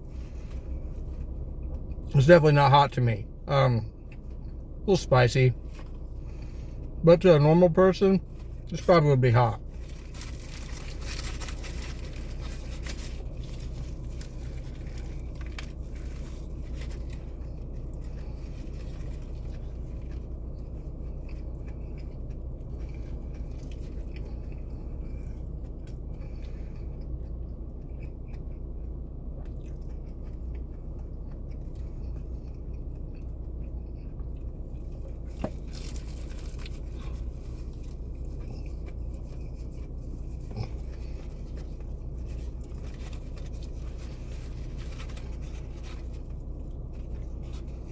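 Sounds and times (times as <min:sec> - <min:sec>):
car cabin hum: 0:00.0 - 0:47.9
clicks and rustles of food: 0:09.6 - 0:47.9
person chewing: 0:09.6 - 0:47.9.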